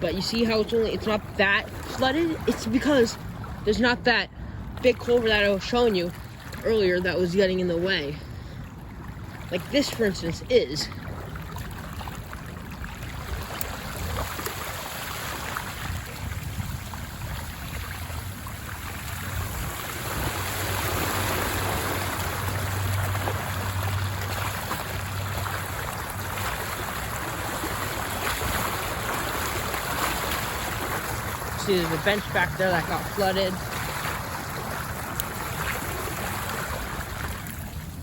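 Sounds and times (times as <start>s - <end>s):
floodwater rushing: 0.0s - 38.0s.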